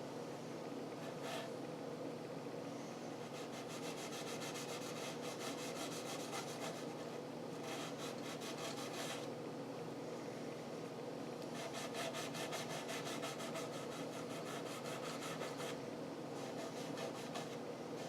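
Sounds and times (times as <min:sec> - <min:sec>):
scouring pad rubbing on wood: 0:11.6 - 0:15.8, 0:16.4 - 0:17.6.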